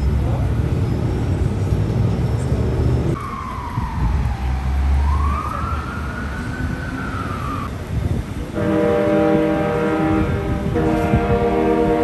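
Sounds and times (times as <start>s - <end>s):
street traffic rumble: 0.0s - 12.0s
siren wailing: 2.2s - 7.8s.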